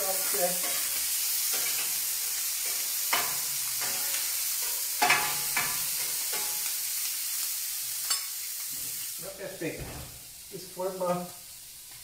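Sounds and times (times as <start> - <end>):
shrimp sizzling on a hot plate: 0.0 - 12.0
spatula clinking on metal plate: 2.6 - 6.6.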